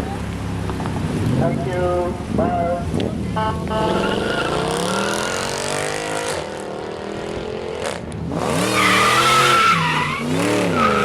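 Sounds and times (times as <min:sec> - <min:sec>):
car engine revving: 0:03.7 - 0:11.0
tires squealing: 0:03.8 - 0:06.2, 0:07.8 - 0:11.0.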